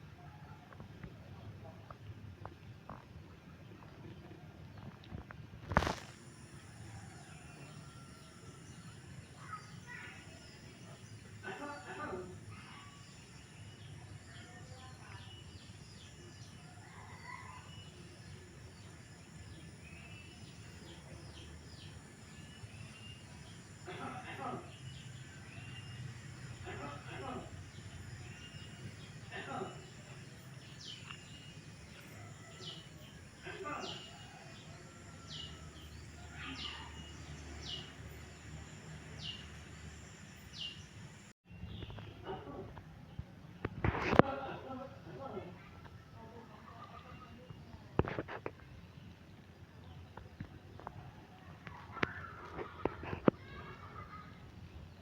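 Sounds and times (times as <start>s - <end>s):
steady background noise: 0.0s - 55.0s
birds chirping: 3.6s - 44.6s.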